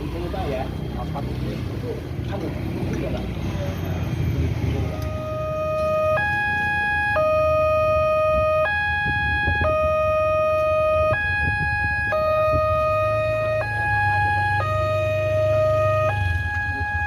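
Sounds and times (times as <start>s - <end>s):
level crossing warning alarm: 3.7s - 17.0s.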